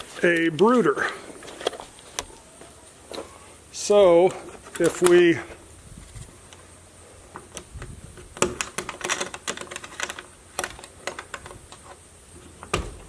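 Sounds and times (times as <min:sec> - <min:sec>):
sharp clicks and light knocks: 0:04.3 - 0:05.3, 0:07.3 - 0:13.0.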